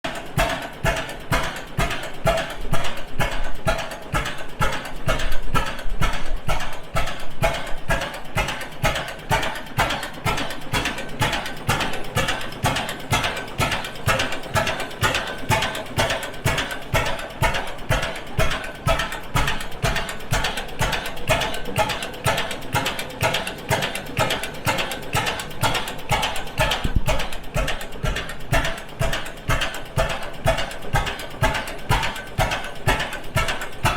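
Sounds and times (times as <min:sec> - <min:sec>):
engine valve gear clattering: 0:00.1 - 0:33.9.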